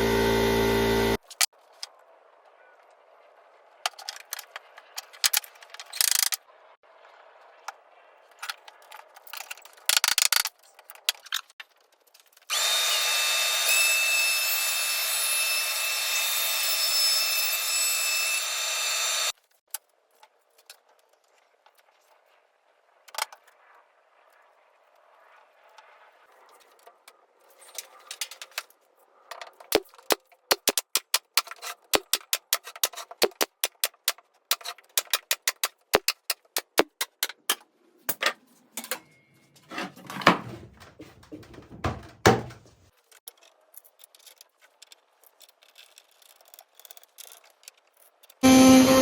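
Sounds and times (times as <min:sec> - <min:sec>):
router spindle cutting wood: 0:00.0 - 0:01.2, 0:12.5 - 0:19.3, 0:48.4 - 0:49.0.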